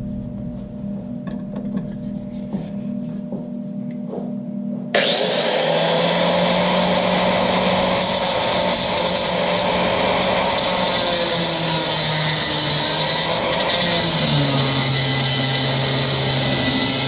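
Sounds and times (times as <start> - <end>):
angle grinder cutting metal: 5.0 - 17.0.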